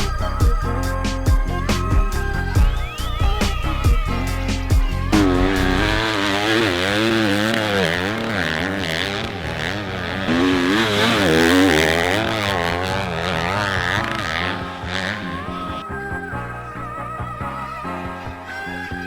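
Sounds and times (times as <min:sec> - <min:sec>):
dirt bike engine revving: 0:02.6 - 0:15.8.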